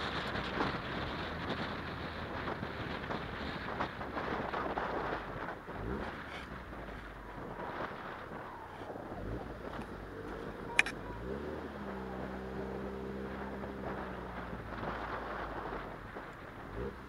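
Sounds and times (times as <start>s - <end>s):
car engine running: 0.0s - 17.0s
wind on microphone: 0.0s - 17.0s
sharp click: 10.8s - 11.0s.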